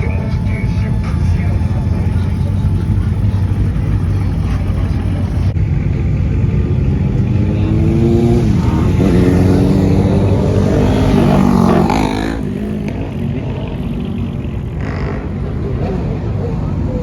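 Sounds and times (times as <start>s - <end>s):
car engine revving: 0.0s - 17.0s
steady low rumble: 0.0s - 17.0s.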